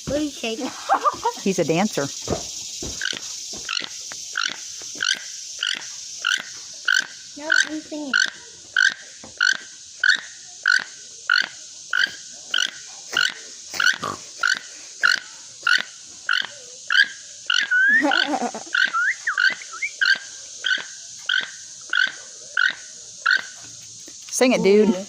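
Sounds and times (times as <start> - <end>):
toucan croaking calls: 1.4 - 23.7
bird whistles and squawks: 13.8 - 23.5.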